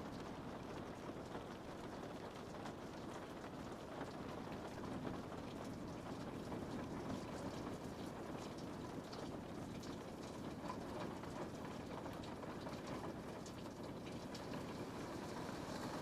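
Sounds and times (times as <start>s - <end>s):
rain pattering on a window: 0.0s - 16.0s.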